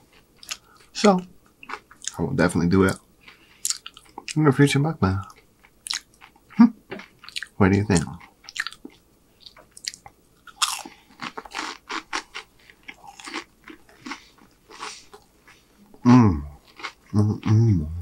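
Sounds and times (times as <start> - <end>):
crisp crunching and chewing: 5.2 - 15.6, 16.6 - 17.5
person humming: 16.0 - 18.0.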